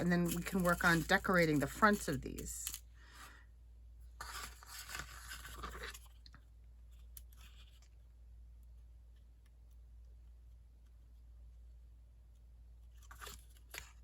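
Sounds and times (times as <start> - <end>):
paper rustling on a tabletop: 0.0 - 2.8, 4.2 - 6.3.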